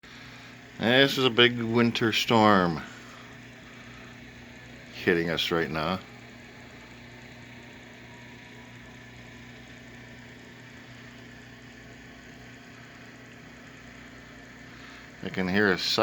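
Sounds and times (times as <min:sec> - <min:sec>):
machine hum with low buzz: 0:00.0 - 0:16.0.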